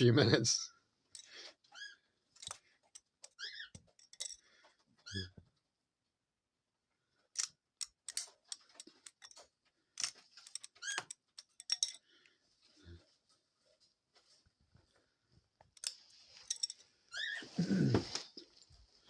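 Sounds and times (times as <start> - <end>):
bird chirping squeaks: 1.6 - 2.1, 3.2 - 4.0, 5.0 - 5.4, 10.5 - 11.2, 17.1 - 17.6
sticks clicking and knocking: 7.4 - 12.4, 15.6 - 16.8.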